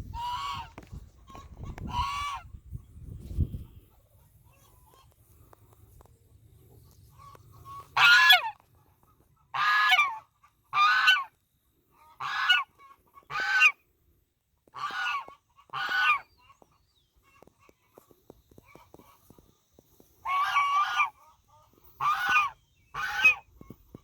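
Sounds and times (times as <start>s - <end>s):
goose honking: 0.1s - 2.5s, 7.1s - 13.8s, 14.7s - 18.0s, 20.2s - 24.0s.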